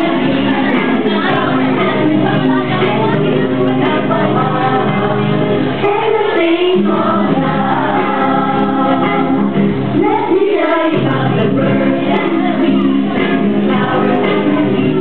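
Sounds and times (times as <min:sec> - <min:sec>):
group singing: 0:00.0 - 0:15.0
instrumental accompaniment: 0:00.0 - 0:15.0.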